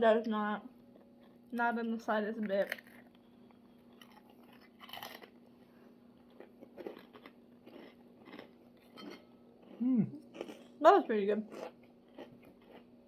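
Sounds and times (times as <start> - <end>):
person chewing crispy cracker: 2.7 - 10.8, 11.5 - 13.0.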